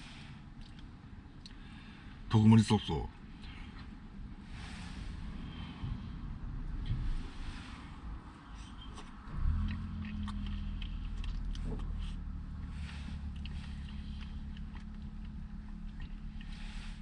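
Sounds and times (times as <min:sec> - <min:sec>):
low steady hum: 0:00.0 - 0:17.0
person eating ice cream: 0:08.9 - 0:17.0.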